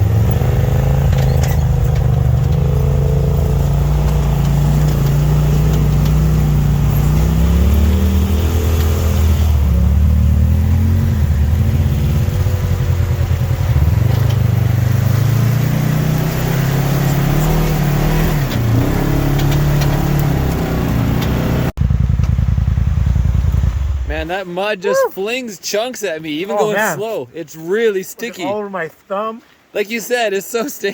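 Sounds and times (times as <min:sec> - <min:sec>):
utility vehicle engine running: 0:00.0 - 0:24.1.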